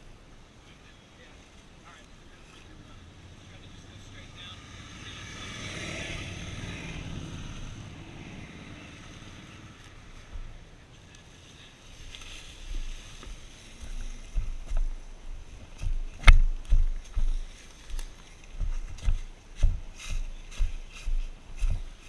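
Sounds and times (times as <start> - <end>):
vehicle passing: 2.7 - 11.5
low thumps and rumbles: 10.2 - 10.6, 12.7 - 21.9.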